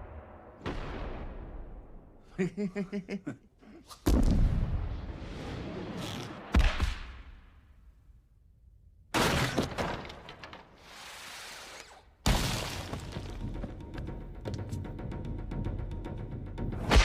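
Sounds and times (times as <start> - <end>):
film score music: 13.0 - 17.0.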